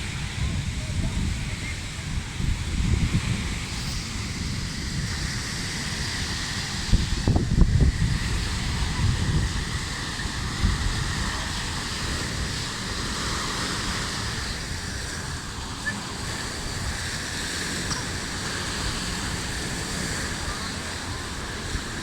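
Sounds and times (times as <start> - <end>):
sea surf washing onto beach: 0.0 - 22.0
wind buffeting microphone: 0.0 - 22.0.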